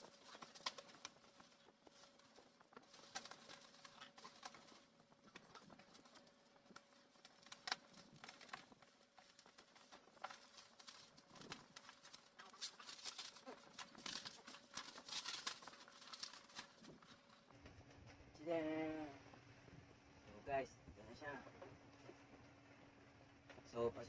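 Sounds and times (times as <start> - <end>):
plastic packaging crinkling: 0.0 - 17.5.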